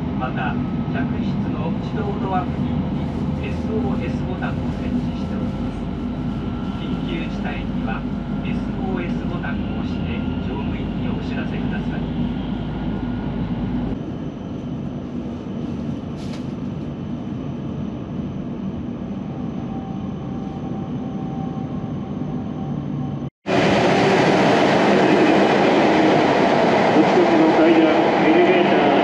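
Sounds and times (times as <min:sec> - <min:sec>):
train wheels rumbling on rails: 0:23.5 - 0:29.0.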